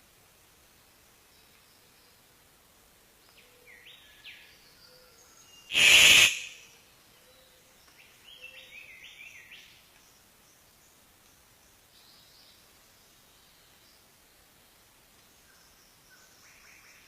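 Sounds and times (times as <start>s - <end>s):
songbird singing: 0.7s - 2.6s, 3.2s - 17.0s
loud harsh burst: 5.7s - 6.6s.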